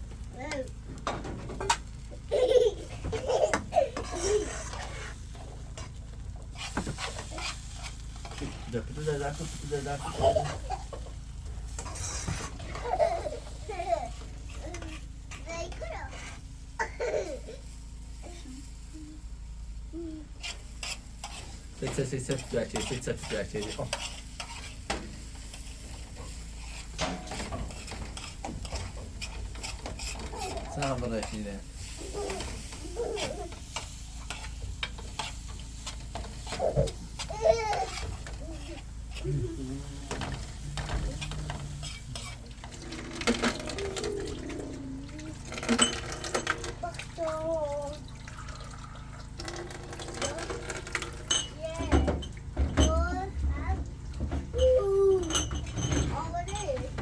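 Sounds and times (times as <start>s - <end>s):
tin cans clattering: 40.0s - 46.8s, 49.2s - 53.0s.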